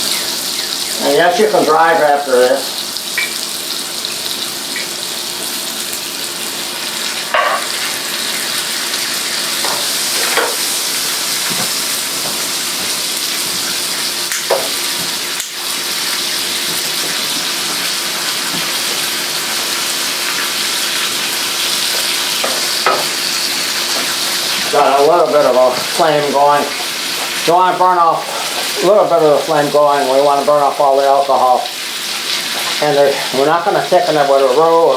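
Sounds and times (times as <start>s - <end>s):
mushrooms sizzling in a pan: 0.0s - 34.9s
utensil knocking against pan: 22.4s - 23.2s.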